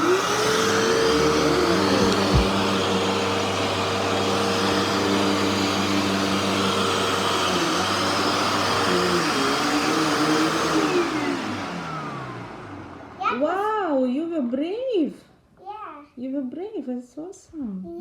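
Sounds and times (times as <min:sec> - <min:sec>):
vacuum cleaner running: 0:00.0 - 0:13.6.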